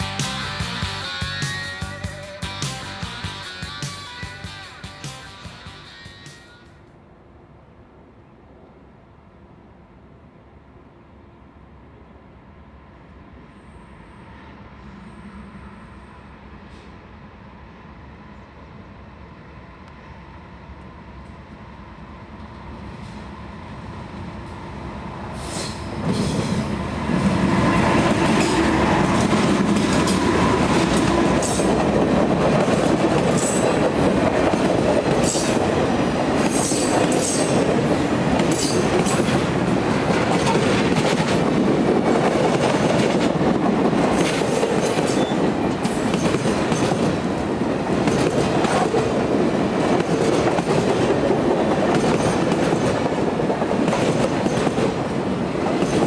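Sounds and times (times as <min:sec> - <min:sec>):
diesel locomotives passing: 0:00.0 - 0:56.0
train wheels rumbling and clicking: 0:25.5 - 0:56.0.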